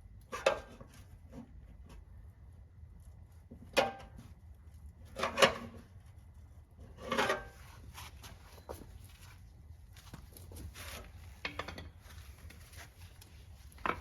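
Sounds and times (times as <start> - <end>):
objects knocking and clunking: 11.3 - 12.2.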